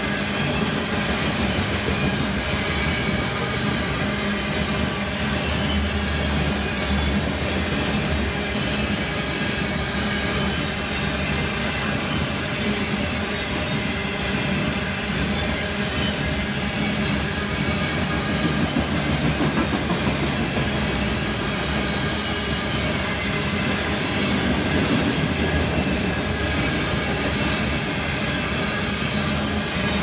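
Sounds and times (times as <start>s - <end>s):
steel wheels clattering on rail: 0.0s - 30.0s.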